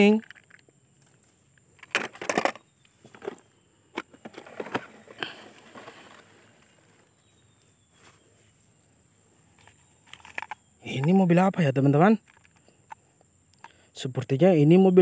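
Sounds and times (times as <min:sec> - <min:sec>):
plastic toy trucks clicking: 0:00.0 - 0:06.4, 0:09.6 - 0:11.2, 0:12.2 - 0:13.0
rustling on grass: 0:04.2 - 0:10.5.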